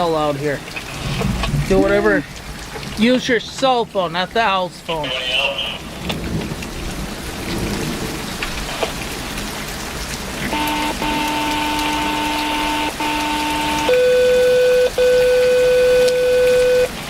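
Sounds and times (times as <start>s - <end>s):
heavy rain: 0.0s - 17.0s
scanner radio alert tone: 1.7s - 2.3s, 10.5s - 17.0s.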